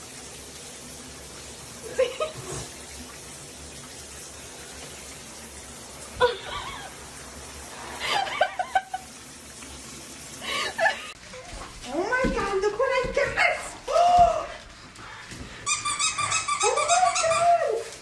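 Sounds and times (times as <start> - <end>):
person laughing: 1.8 - 2.5, 6.2 - 7.0, 8.0 - 9.1.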